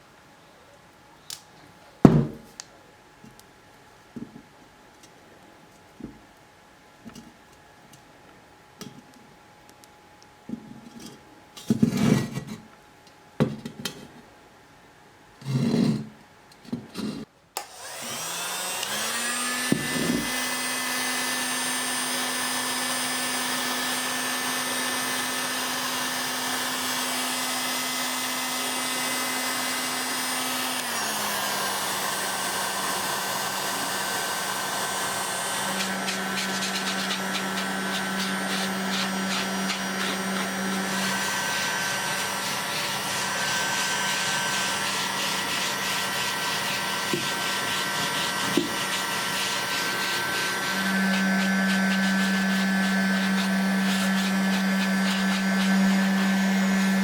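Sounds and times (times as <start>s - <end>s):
workshop knocks and clatters: 2.1s - 2.5s
electric blower running: 17.6s - 57.0s.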